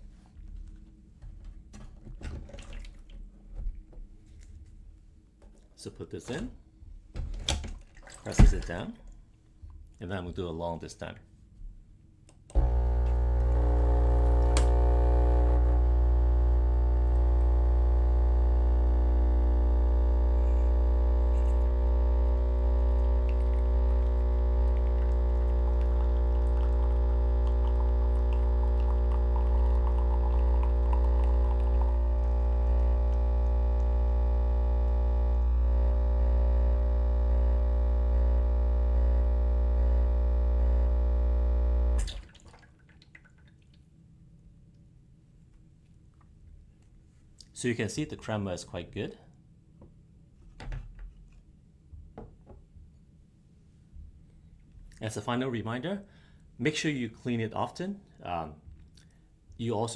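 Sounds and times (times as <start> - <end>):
coffee machine pump buzzing: 12.5 - 42.2.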